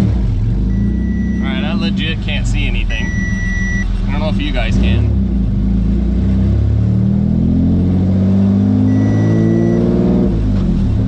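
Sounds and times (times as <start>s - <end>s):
car engine revving: 0.0s - 11.0s
short steady beep: 0.7s - 1.8s, 2.8s - 3.9s, 8.8s - 10.1s.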